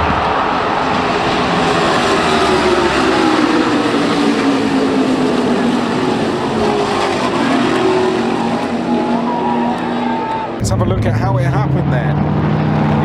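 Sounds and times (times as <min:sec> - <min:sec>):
race car engines at high revs: 0:00.0 - 0:13.0.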